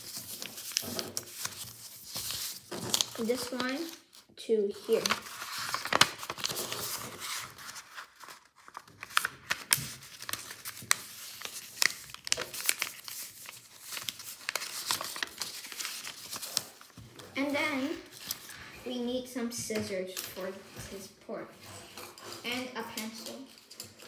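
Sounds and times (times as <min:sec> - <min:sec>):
paper crinkling and rustling: 0:00.0 - 0:18.8.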